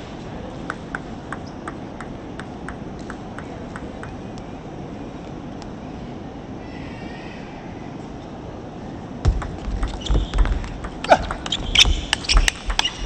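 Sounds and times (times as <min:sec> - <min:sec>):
arena background noise: 0:00.0 - 0:13.0
table tennis ball clicking: 0:00.6 - 0:04.4, 0:09.3 - 0:13.0.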